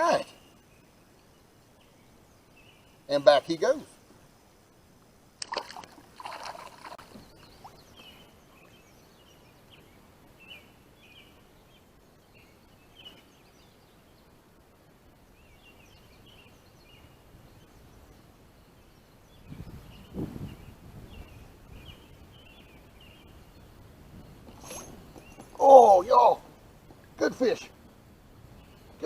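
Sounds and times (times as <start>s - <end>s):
fish splashing into water: 5.4s - 7.7s
water sloshing: 5.4s - 7.9s
faint bird chirps: 6.3s - 14.4s, 15.3s - 26.4s.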